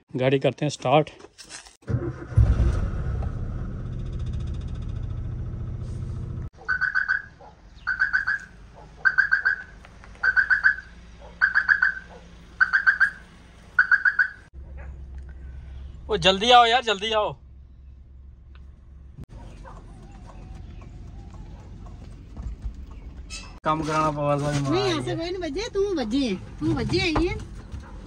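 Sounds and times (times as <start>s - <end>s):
car engine starting and idling: 1.8s - 23.6s
faint engine hum: 2.0s - 23.6s.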